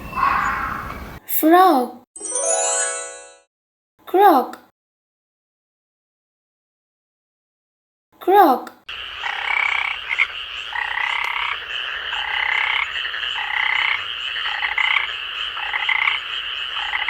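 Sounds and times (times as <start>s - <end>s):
frog croaking: 8.9s - 17.0s.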